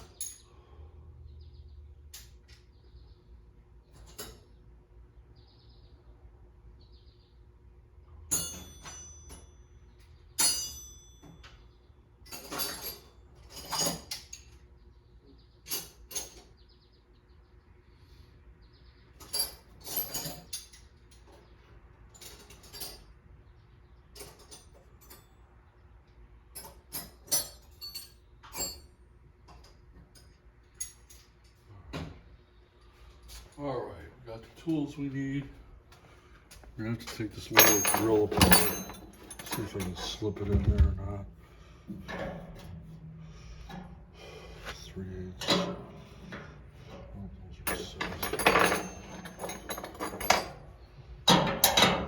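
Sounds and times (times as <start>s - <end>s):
metal hand tools clanking: 37.0s - 41.0s, 47.6s - 50.7s.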